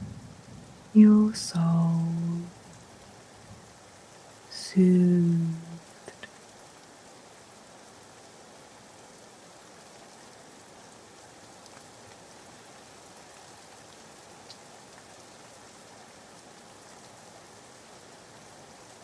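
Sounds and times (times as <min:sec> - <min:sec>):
rain hiss: 0:00.0 - 0:19.0
raindrop ticks: 0:04.6 - 0:06.9, 0:11.3 - 0:17.2.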